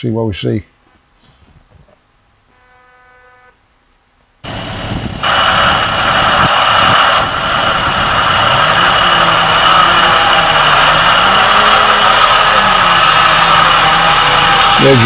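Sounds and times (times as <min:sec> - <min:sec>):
heavy vehicle engines running: 0:04.4 - 0:15.0.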